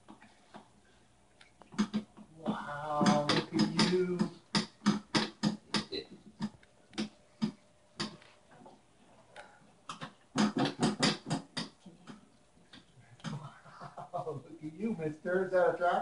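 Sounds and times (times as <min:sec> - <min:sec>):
sharp taps and knocks: 0:01.6 - 0:02.3, 0:03.0 - 0:08.3, 0:09.9 - 0:13.4.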